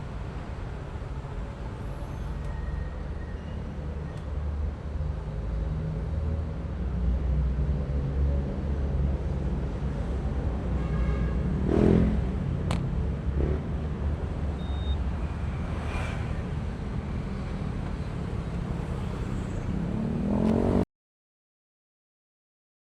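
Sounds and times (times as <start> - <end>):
road and wind noise: 0.0 - 20.9.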